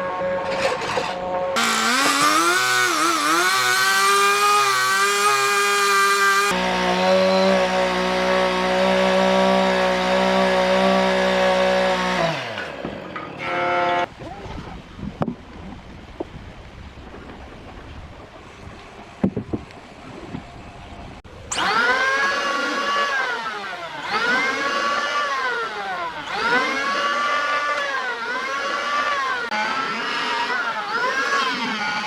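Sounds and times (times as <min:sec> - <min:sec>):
power tool motor running: 0:01.6 - 0:14.1, 0:21.5 - 0:32.0.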